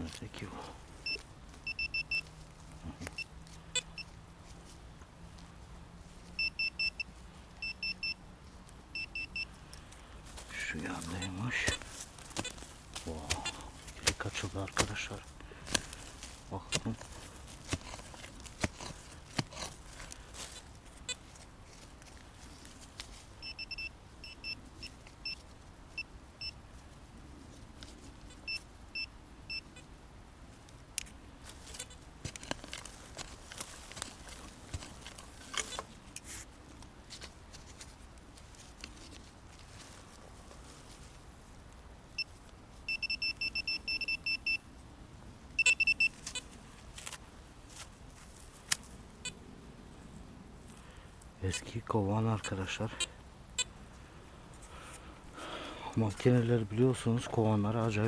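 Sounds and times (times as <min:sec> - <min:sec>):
metal detector probe beeping: 0:01.0 - 0:02.3, 0:03.0 - 0:04.1, 0:06.4 - 0:08.2, 0:08.9 - 0:09.5, 0:23.4 - 0:25.4, 0:28.4 - 0:29.8, 0:42.9 - 0:44.6, 0:45.6 - 0:46.4
metal detector short high beeps: 0:01.1 - 0:02.2, 0:09.0 - 0:09.5, 0:23.4 - 0:24.6, 0:42.9 - 0:44.6, 0:45.6 - 0:46.1.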